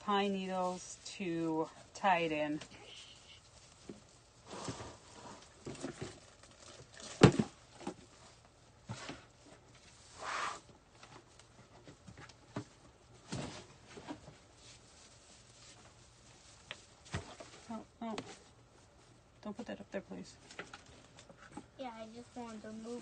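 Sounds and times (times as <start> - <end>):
pine greenery rustling and crackling: 0.0 - 8.6, 13.0 - 18.1, 21.8 - 23.0.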